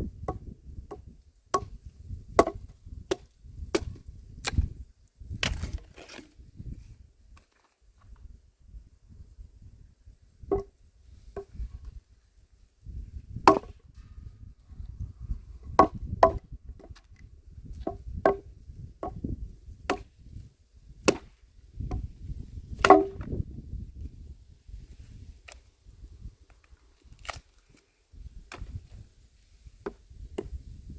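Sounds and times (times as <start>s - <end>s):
axe chopping wood: 0.2s - 4.8s, 13.4s - 13.8s, 15.7s - 16.9s, 17.8s - 23.4s, 29.8s - 30.7s.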